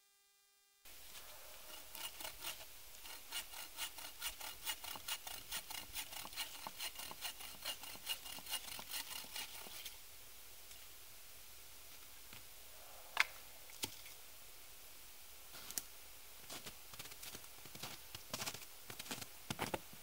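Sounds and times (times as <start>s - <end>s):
hand saw cutting wood: 1.1s - 10.0s.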